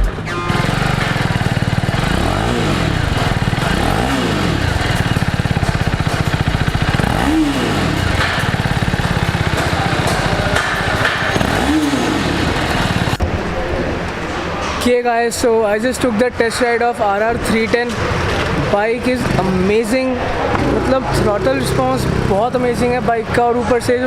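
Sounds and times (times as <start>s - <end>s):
motorcycle engine revving: 0.0s - 13.2s, 17.9s - 23.4s.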